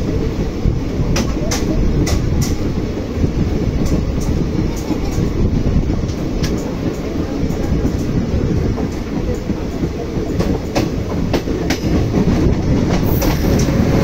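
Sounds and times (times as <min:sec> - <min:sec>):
steel wheels rumbling on rail: 0:00.0 - 0:14.0
wheels clacking over rail joints: 0:01.0 - 0:02.8, 0:03.5 - 0:14.0.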